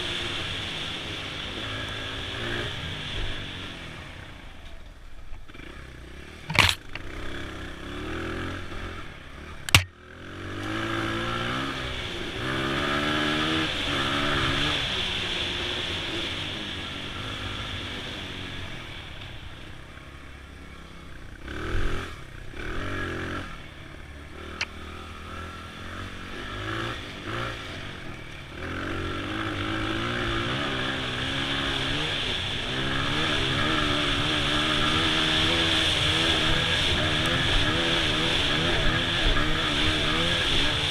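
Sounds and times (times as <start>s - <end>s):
motorcycle engine running: 3.2s - 40.9s.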